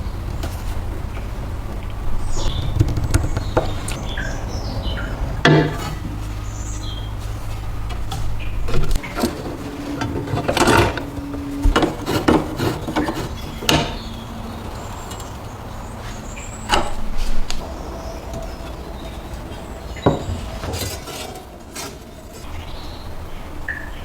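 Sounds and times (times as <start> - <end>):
hard objects knocking and clattering: 0.0 - 4.4, 5.1 - 6.3, 7.9 - 14.0, 20.0 - 22.4
low steady hum: 0.0 - 24.0.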